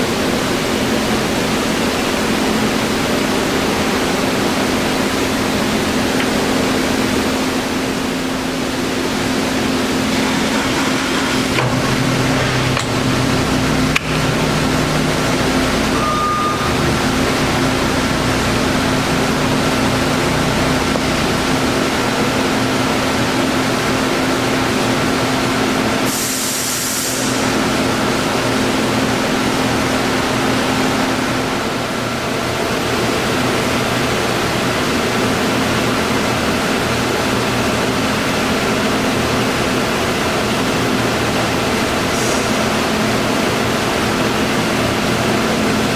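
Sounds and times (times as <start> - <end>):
lathe humming and whining: 0.1 - 26.2.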